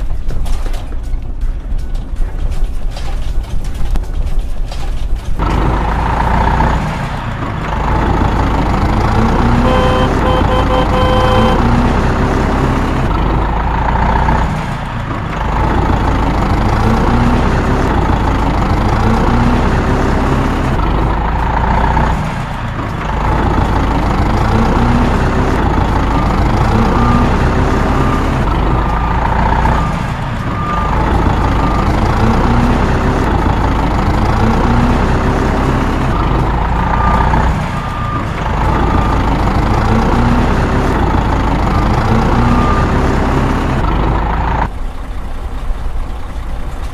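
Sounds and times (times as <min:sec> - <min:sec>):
heavy truck engine running: 0:00.0 - 0:46.9
short reversing beeps: 0:09.6 - 0:11.7.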